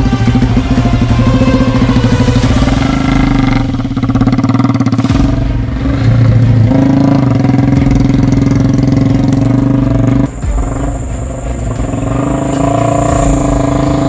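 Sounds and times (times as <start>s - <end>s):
motorcycle engine running loudly: 0.0s - 14.0s.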